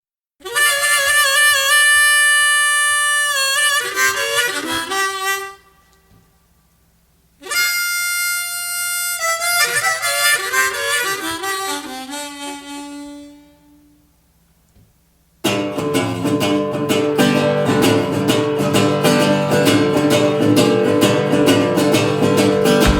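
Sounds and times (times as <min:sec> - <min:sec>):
harmonica playing: 0:00.4 - 0:05.8, 0:07.4 - 0:14.0, 0:19.8 - 0:22.9.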